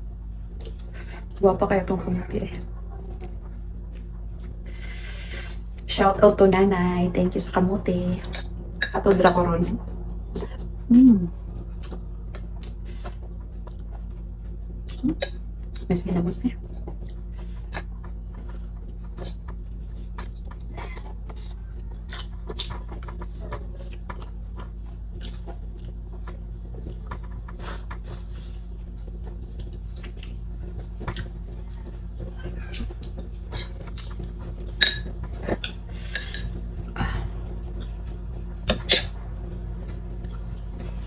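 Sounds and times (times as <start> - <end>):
steady low hum: 0.0 - 41.0
chewing food: 0.5 - 1.4, 2.9 - 5.9, 8.2 - 15.9, 16.6 - 39.2
dishes clicking and clinking: 33.5 - 35.8, 38.7 - 39.2.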